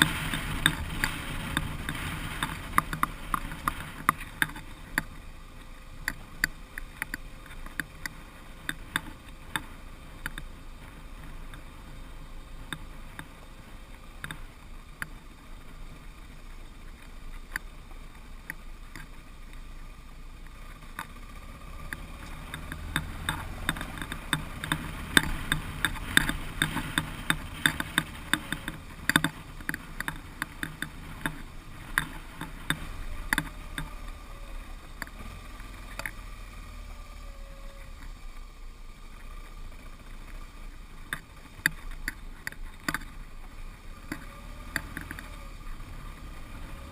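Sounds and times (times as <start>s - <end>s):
knocks and rattles over stones: 0.0s - 5.2s, 21.8s - 36.3s, 39.4s - 46.9s
motorcycle engine rumble: 0.0s - 46.9s.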